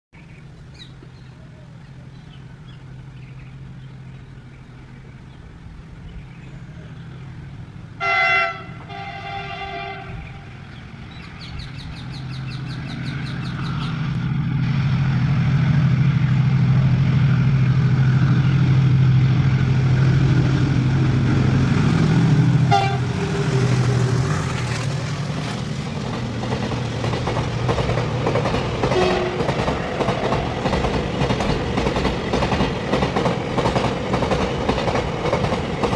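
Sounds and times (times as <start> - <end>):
freight train rumbling past: 0.2 - 35.9
locomotive horn: 8.0 - 10.7, 22.6 - 24.5, 28.8 - 30.1.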